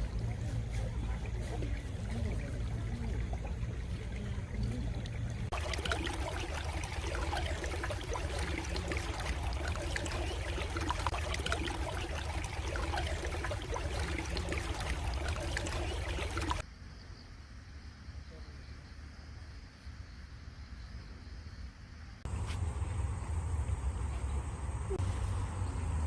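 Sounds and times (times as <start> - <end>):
stream water babbling: 0.0 - 16.6.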